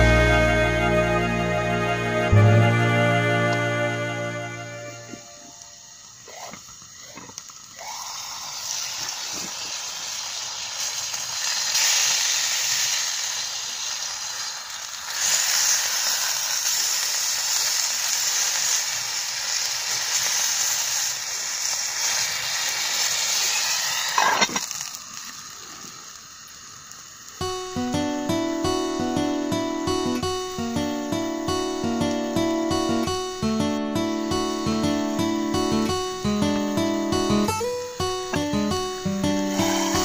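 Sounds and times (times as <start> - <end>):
food sizzling in a pan: 4.7 - 40.0
brief sharp sound: 39.4 - 40.0.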